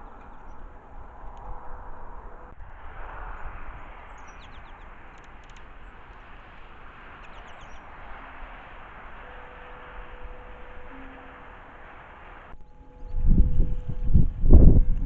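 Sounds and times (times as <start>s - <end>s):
birds chirping: 0.0s - 14.4s
low rumble: 0.0s - 15.0s
outdoor hiss: 2.6s - 12.6s.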